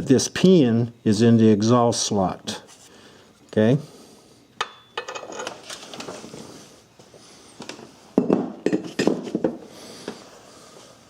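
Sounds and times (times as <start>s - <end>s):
metal tools clinking and clanking: 4.6s - 6.0s.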